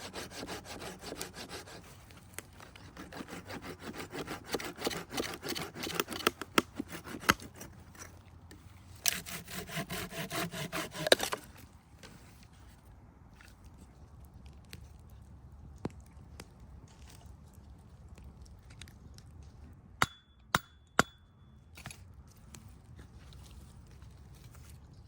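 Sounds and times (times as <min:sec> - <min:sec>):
hand saw cutting wood: 0:00.0 - 0:02.0, 0:02.6 - 0:08.1, 0:09.0 - 0:11.6.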